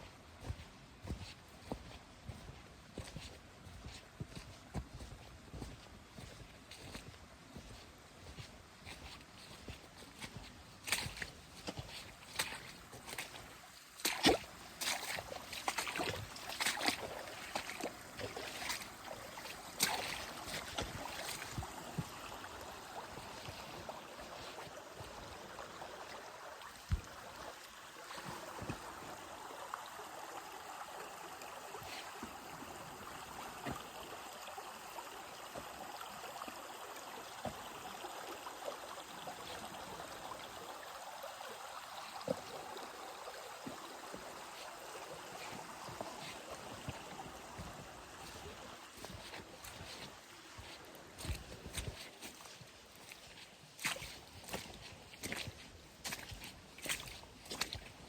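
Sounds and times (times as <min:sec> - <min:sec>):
stream running: 0:00.0 - 0:58.0.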